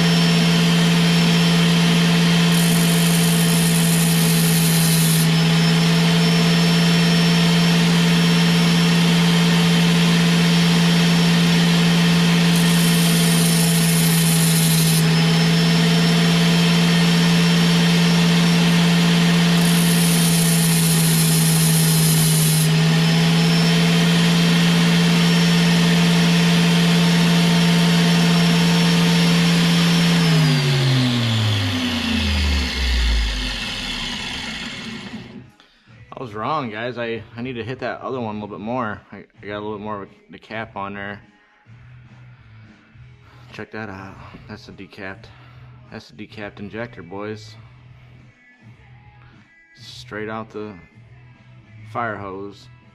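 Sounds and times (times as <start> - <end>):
electric grinder running: 0.0 - 35.5
grinder spinning down: 0.0 - 35.5
harsh grinding of metal: 0.0 - 35.5.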